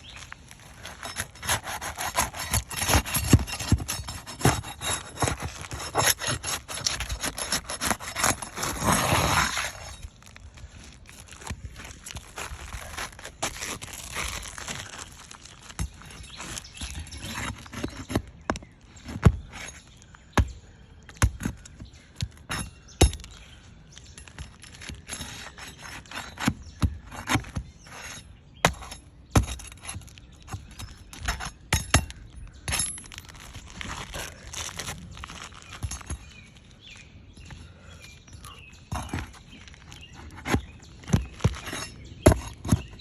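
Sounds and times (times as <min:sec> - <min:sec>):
shingles crackling as they break: 0:00.2 - 0:18.2
tool knocking and scraping: 0:00.7 - 0:10.0, 0:24.2 - 0:33.3, 0:38.8 - 0:43.0.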